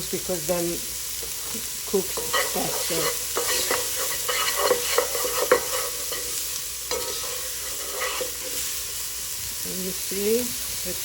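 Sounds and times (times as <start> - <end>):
onions sizzling in a frying pan: 0.0 - 11.0
utensil scraping a pan: 2.1 - 9.0.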